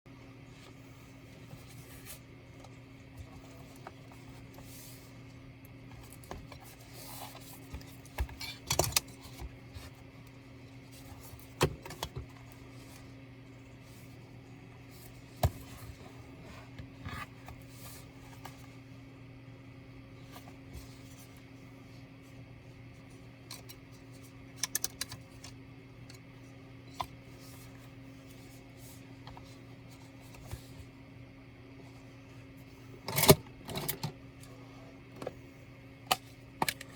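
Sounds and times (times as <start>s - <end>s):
steady low hum: 0.1s - 36.9s
tools clicking on laptop parts: 24.5s - 26.2s.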